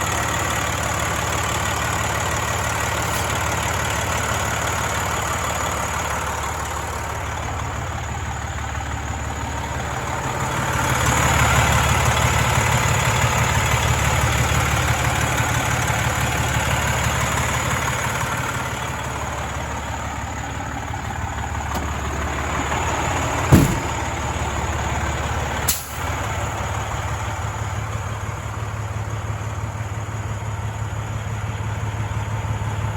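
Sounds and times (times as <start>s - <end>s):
diesel truck engine idling: 0.0s - 32.9s
sharp knocks: 23.5s - 24.1s.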